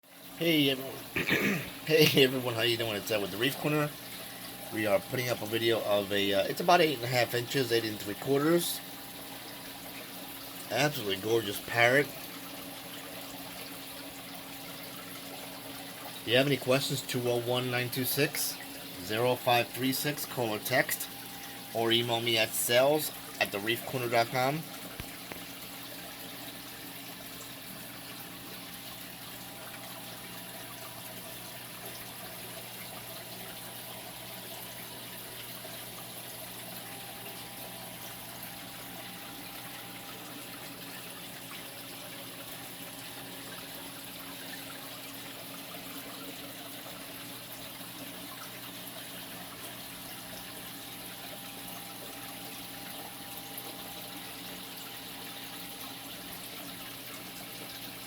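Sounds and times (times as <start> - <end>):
low pump hum: 0.1 - 58.0
water flowing and trickling: 0.1 - 58.0.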